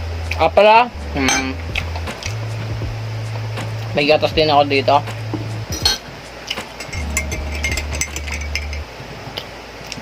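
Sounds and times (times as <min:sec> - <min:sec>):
tableware clinking and rattling: 0:05.7 - 0:06.1, 0:06.8 - 0:08.9
low hum: 0:06.8 - 0:09.1.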